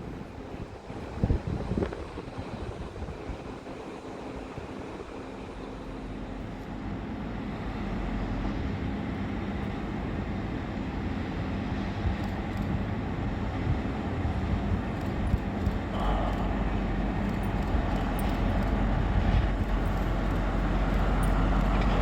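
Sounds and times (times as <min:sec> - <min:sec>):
train rumbling and humming: 0:00.0 - 0:22.0.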